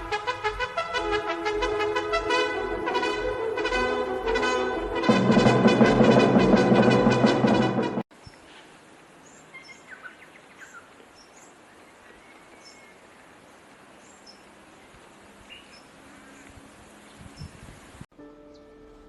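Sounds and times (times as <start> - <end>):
faint outdoor hiss: 0.0 - 5.1, 8.1 - 19.0
loud music: 0.1 - 8.0
small birds chirping: 8.1 - 18.7.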